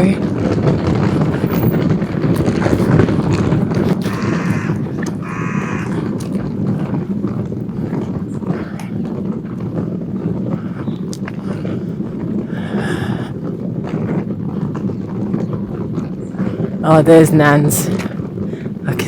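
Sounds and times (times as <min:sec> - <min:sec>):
steady low rumble: 0:00.0 - 0:16.8
harsh animal calls: 0:03.8 - 0:06.4.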